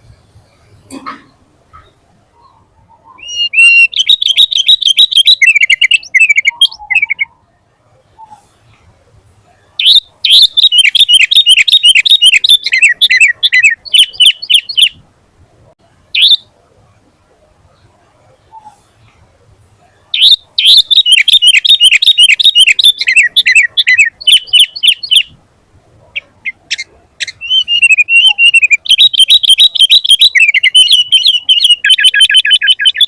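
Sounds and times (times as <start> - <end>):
bird singing rapid high notes: 2.4 - 7.4, 9.8 - 15.0, 20.2 - 25.4, 26.2 - 33.0.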